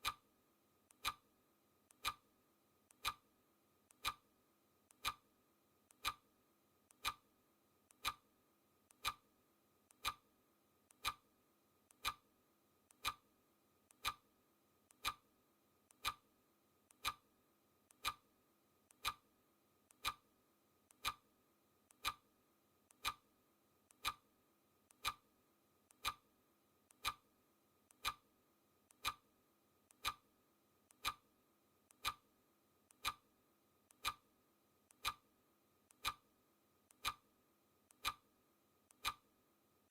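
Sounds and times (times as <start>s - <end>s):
clock ticking: 0.0s - 0.2s, 0.9s - 1.2s, 1.9s - 2.3s, 2.9s - 3.3s, 3.9s - 4.3s, 4.9s - 5.3s, 5.9s - 6.3s, 6.9s - 7.3s, 7.9s - 8.3s, 8.9s - 9.3s, 9.9s - 10.2s, 10.9s - 11.3s, 11.9s - 12.3s, 12.9s - 13.2s, 13.9s - 14.3s, 14.9s - 15.3s, 15.9s - 16.3s, 16.9s - 17.3s, 17.9s - 18.3s, 18.9s - 19.3s, 19.9s - 20.3s, 20.9s - 21.3s, 21.9s - 22.3s, 22.9s - 23.3s, 23.9s - 24.3s, 24.9s - 25.3s, 25.9s - 26.3s, 26.9s - 27.3s, 27.9s - 28.3s, 28.9s - 29.3s, 29.9s - 30.3s, 30.9s - 31.3s, 31.9s - 32.3s, 32.9s - 33.3s, 33.9s - 34.3s, 34.9s - 35.3s, 35.9s - 36.3s, 36.9s - 37.3s, 37.9s - 38.3s, 38.9s - 39.3s.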